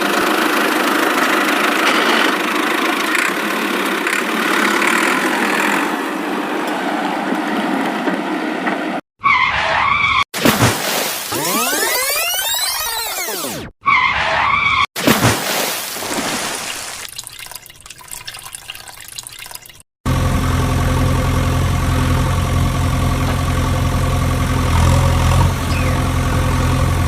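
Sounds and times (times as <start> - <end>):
heavy vehicle engine idling: 0.0 - 5.8, 20.1 - 27.0
noisy sound effect: 9.3 - 14.8.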